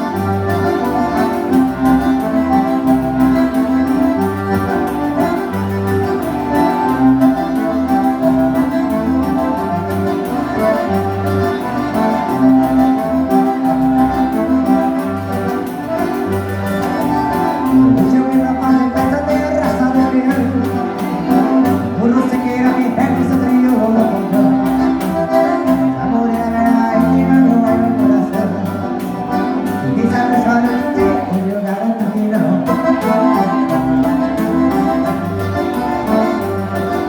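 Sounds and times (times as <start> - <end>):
accordion dance band music: 0.0 - 37.0.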